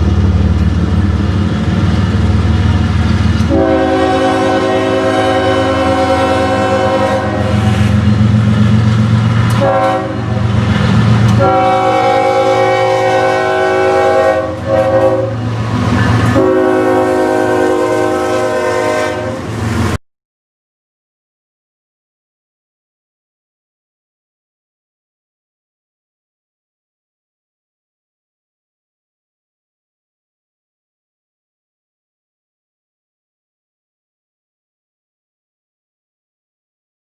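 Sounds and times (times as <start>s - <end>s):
passing train rumble: 0.0s - 20.0s
locomotive air horn blasts: 3.4s - 8.0s, 9.5s - 10.5s, 11.3s - 15.6s, 16.2s - 20.0s.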